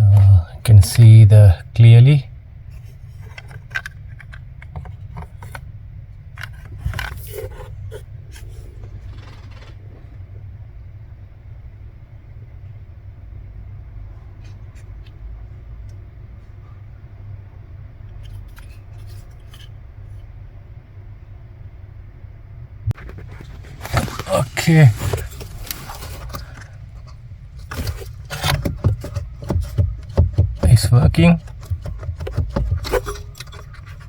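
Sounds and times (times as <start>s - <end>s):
steady low hum: 0.0s - 34.0s
plastic part clicks and scrapes: 3.1s - 5.7s, 6.4s - 9.8s, 18.1s - 19.8s, 23.0s - 34.0s.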